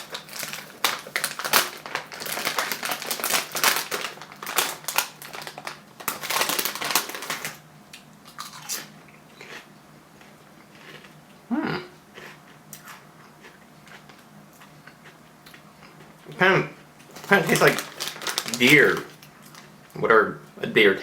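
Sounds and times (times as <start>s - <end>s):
chip bag crinkling: 0.0s - 7.6s, 8.3s - 9.6s, 17.0s - 19.8s.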